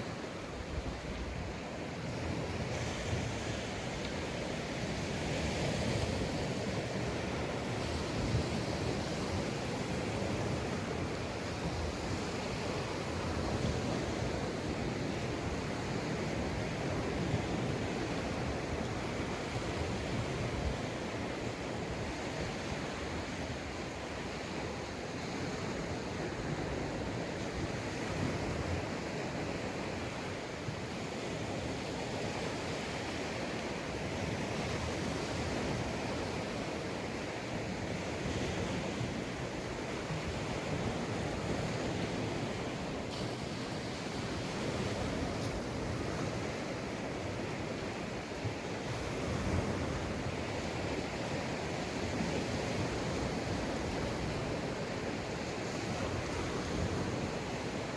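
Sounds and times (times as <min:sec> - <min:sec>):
waves washing onto beach: 0:00.0 - 0:57.9
wind on microphone: 0:00.0 - 0:57.9.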